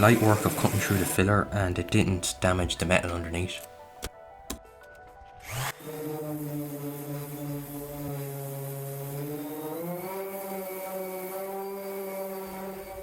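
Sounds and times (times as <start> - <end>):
angle grinder running: 5.6 - 13.0.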